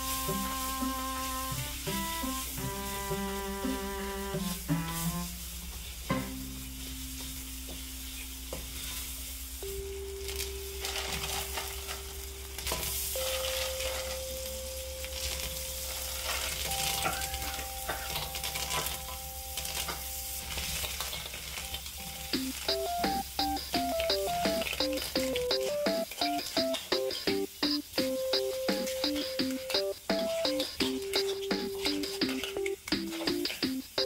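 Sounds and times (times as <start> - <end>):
paste sizzling in a wok: 0.0 - 9.9, 10.8 - 34.0
metal spatula scraping a wok: 8.7 - 9.2.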